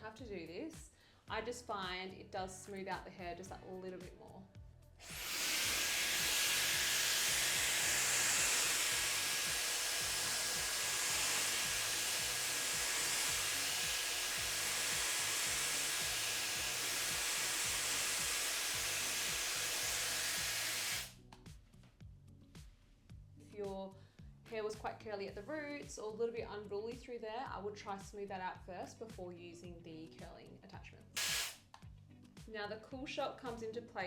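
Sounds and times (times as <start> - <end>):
background music with steady beat: 0.0 - 34.0
hair dryer blowing: 5.0 - 21.1, 31.2 - 31.6.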